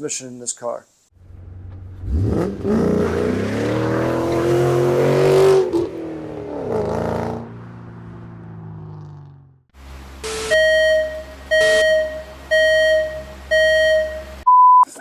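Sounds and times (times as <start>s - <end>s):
car engine revving: 1.2s - 10.4s.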